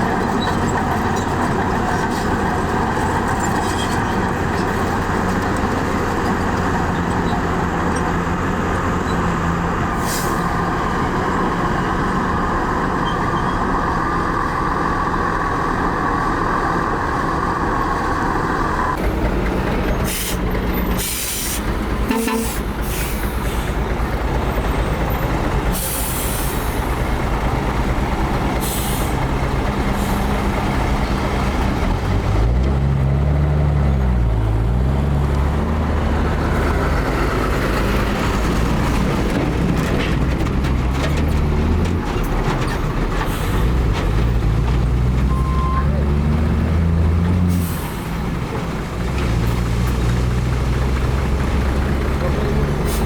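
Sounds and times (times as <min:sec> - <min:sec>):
heavy diesel engines running: 0:00.0 - 0:53.0
air brakes hissing: 0:10.0 - 0:10.6, 0:20.0 - 0:23.8, 0:25.7 - 0:26.9, 0:28.6 - 0:29.2, 0:47.5 - 0:48.2.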